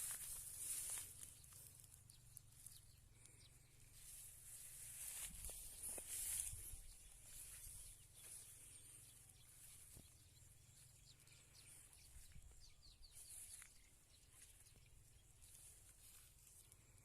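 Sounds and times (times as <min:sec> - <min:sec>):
steady high-pitched hiss: 0:00.0 - 0:12.8
bird chirps: 0:00.0 - 0:17.0.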